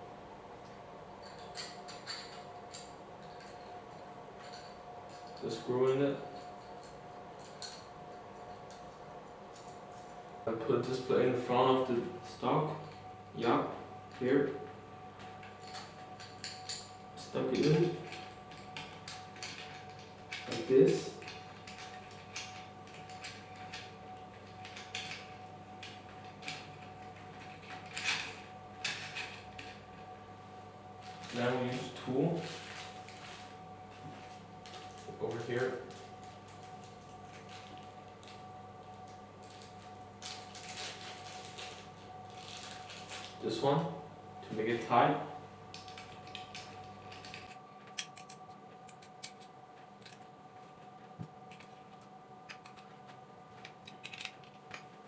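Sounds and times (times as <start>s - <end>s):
faint electrical hum: 0.0s - 55.0s
metal parts clicking and rustling: 1.2s - 10.2s, 15.2s - 29.8s, 45.7s - 55.0s.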